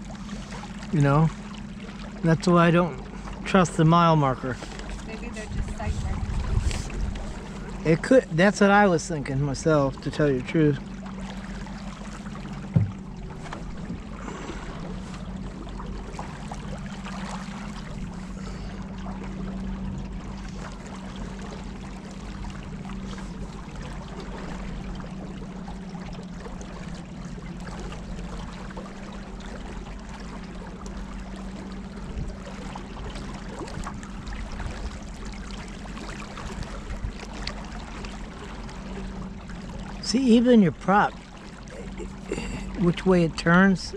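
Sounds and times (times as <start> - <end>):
motorboat engine running: 0.0 - 43.9
water rushing past hull: 0.0 - 43.9
sharp knock: 12.7 - 13.0.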